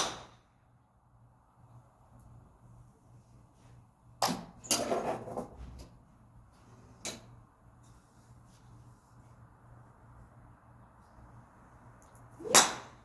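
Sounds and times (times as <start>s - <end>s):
golf club strike and swish: 0.0s - 0.4s, 12.4s - 13.0s.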